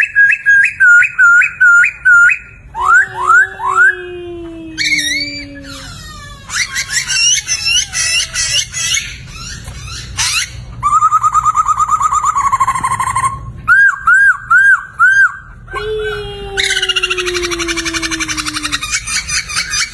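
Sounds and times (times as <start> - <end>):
bird singing: 0.0 - 4.2.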